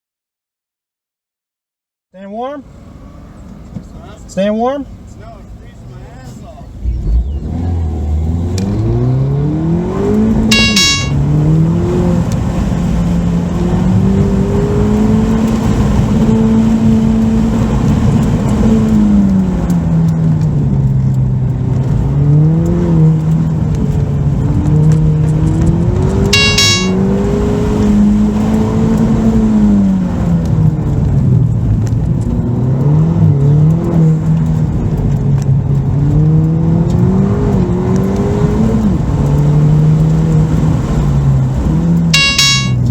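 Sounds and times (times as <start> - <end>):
car engine accelerating: 2.7 - 10.5
short high chirps: 10.5 - 11.2, 26.4 - 27.0, 42.2 - 42.9.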